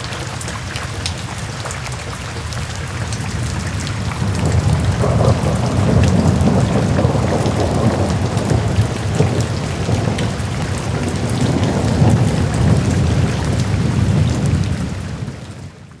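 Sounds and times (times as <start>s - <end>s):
heavy rain pattering: 0.0s - 16.0s
rolling thunder: 3.2s - 15.7s.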